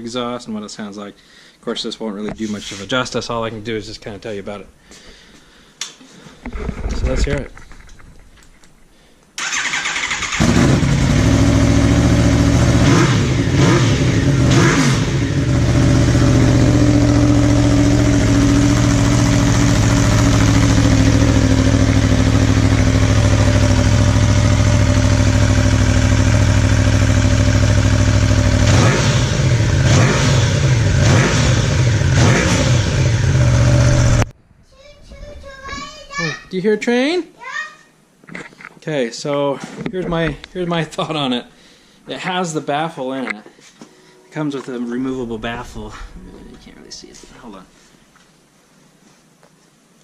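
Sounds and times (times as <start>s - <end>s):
motorcycle engine starting: 9.4s - 34.3s
loud throaty engine idling and revving: 10.4s - 34.3s.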